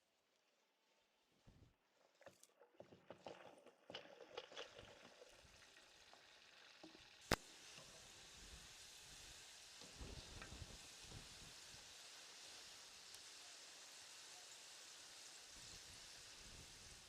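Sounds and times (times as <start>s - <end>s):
oil crackles and knocks: 2.0s - 8.2s
food sizzling in hot oil: 5.4s - 17.0s.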